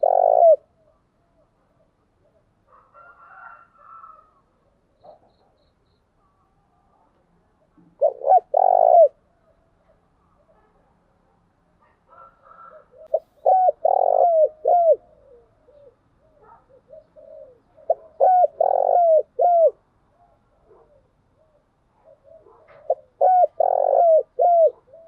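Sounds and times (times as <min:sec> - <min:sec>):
dove cooing: 0:00.0 - 0:04.4, 0:07.8 - 0:10.0, 0:12.1 - 0:25.0.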